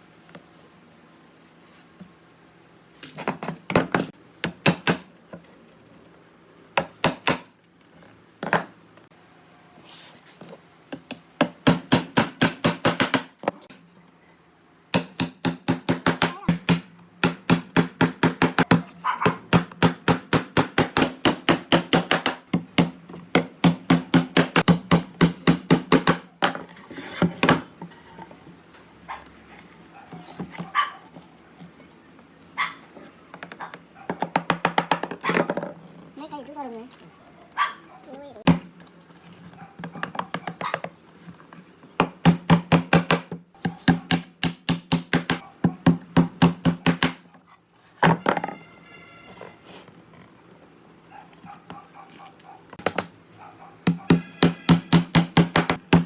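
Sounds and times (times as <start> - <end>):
hammer striking wood: 6.8 - 7.5, 11.4 - 13.3, 14.9 - 26.6, 42.0 - 47.2, 53.8 - 56.0.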